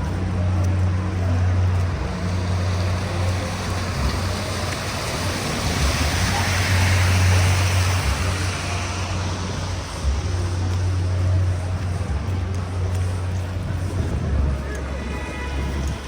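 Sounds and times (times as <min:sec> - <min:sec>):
traffic engine hum: 0:00.0 - 0:16.0
tyre hiss on wet road: 0:01.9 - 0:11.8.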